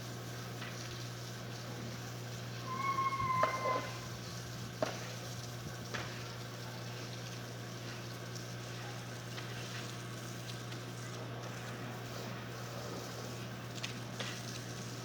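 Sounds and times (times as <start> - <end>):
hiss: 2.6 - 4.1.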